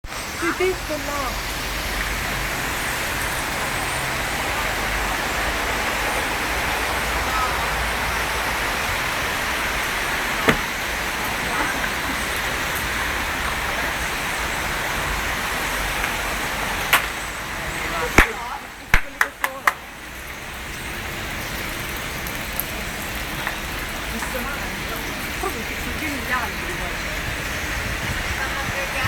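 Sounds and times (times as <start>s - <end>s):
city traffic: 0.0s - 29.0s
flock of birds chattering: 0.1s - 19.6s.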